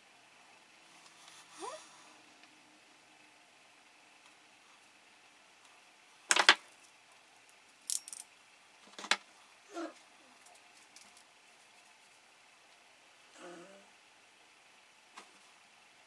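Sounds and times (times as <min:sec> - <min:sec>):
metal tools clinking on a workbench: 0:07.9 - 0:08.2.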